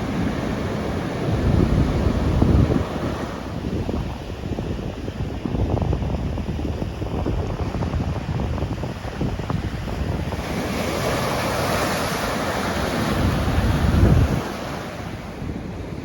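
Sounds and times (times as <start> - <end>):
ocean waves crashing: 0.0 - 5.5, 7.0 - 16.0
wind buffeting microphone: 0.0 - 16.0.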